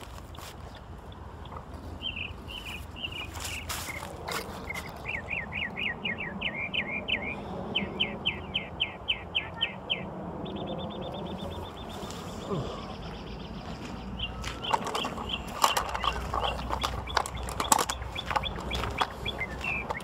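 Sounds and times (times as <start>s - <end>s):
bird chirping and trilling: 2.0s - 20.0s.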